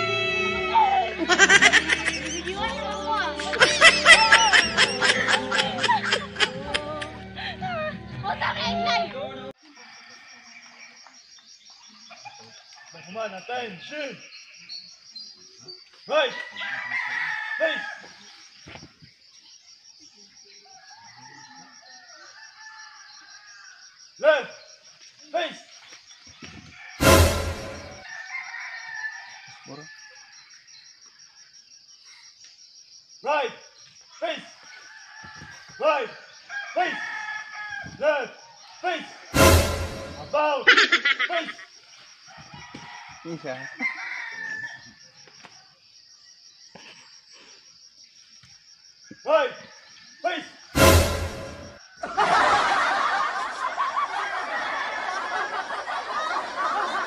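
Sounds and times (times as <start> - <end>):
rooster crowing: 16.3 - 18.2, 20.7 - 23.8, 26.7 - 30.4, 34.8 - 40.4, 42.3 - 45.0.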